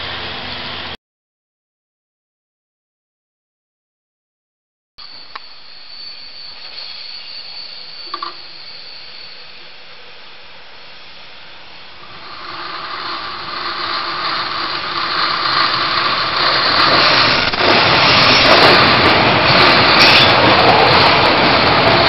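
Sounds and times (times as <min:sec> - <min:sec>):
train wheels on rails: 0:05.0 - 0:10.1, 0:12.0 - 0:22.0.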